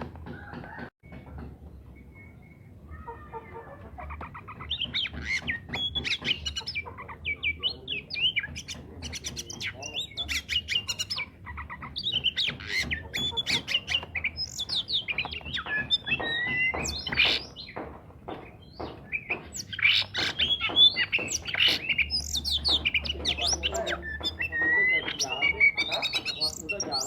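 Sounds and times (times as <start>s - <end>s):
bird singing varied song: 0.0s - 27.0s.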